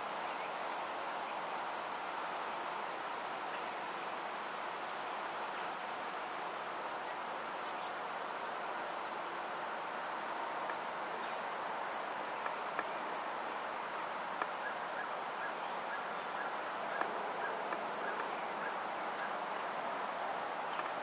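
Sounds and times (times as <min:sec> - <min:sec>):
outdoor hiss: 0:00.0 - 0:21.0
faint clicks: 0:12.4 - 0:13.0, 0:14.4 - 0:14.6, 0:16.9 - 0:18.4, 0:20.7 - 0:21.0.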